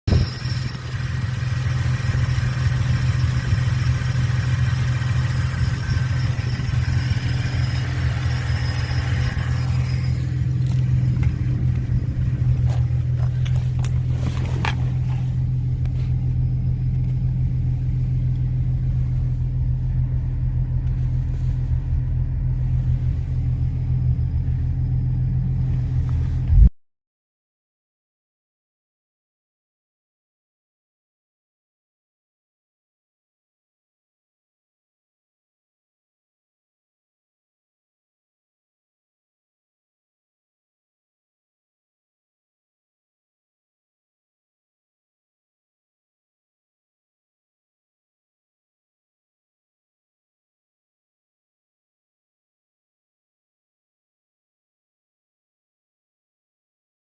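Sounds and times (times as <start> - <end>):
car engine running: 0.1 - 26.7.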